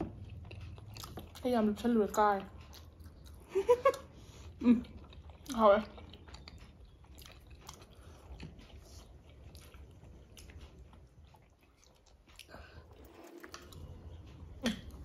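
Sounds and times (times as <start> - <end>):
chewing and biting food: 0.0 - 15.0.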